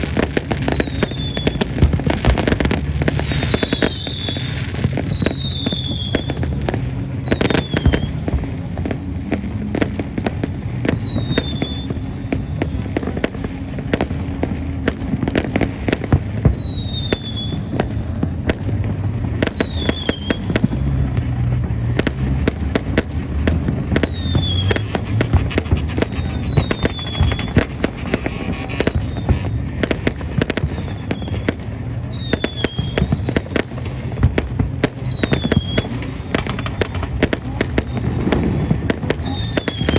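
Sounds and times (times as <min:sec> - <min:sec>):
fireworks bangs and crackles: 0:00.0 - 0:39.9
fireworks falling whistles: 0:00.0 - 0:39.9.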